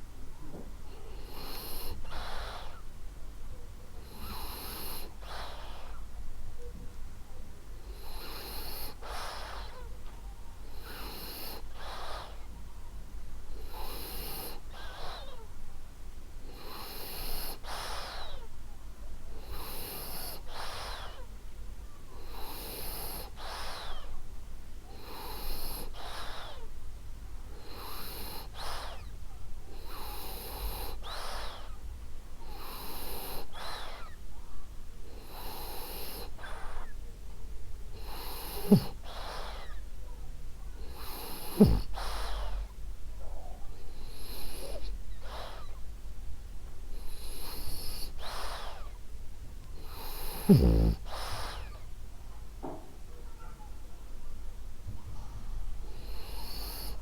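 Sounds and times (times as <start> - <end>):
dog snoring: 0.9 - 2.8, 4.0 - 6.0, 7.8 - 9.9, 10.7 - 12.5, 13.5 - 15.4, 16.4 - 18.5, 19.4 - 21.3, 22.2 - 24.1, 24.9 - 26.7, 27.5 - 29.1, 29.7 - 31.8, 32.4 - 34.2, 35.1 - 37.0, 37.9 - 39.8, 40.8 - 42.7, 43.4 - 45.8, 46.9 - 49.0, 49.6 - 51.8, 55.8 - 57.0.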